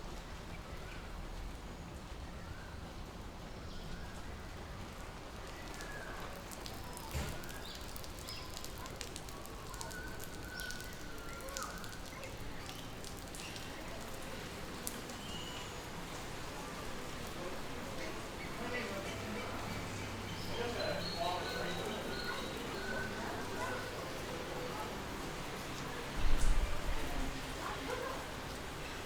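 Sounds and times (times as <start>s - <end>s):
birds whistling and chirping: 15.2s - 15.8s, 19.6s - 23.5s.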